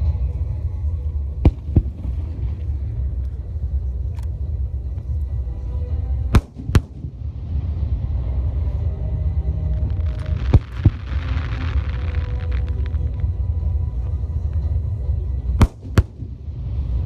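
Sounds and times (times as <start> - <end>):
steady low rumble: 0.0 - 17.0
firework shells bursting: 1.5 - 3.4, 6.4 - 7.2, 15.6 - 16.5.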